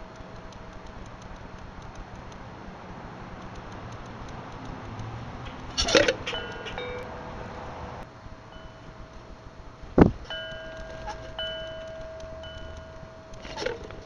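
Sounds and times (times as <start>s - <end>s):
faint even ticking: 0.0s - 7.4s, 8.4s - 14.0s
short ringing tones: 5.8s - 7.7s, 8.5s - 9.4s, 10.2s - 14.0s.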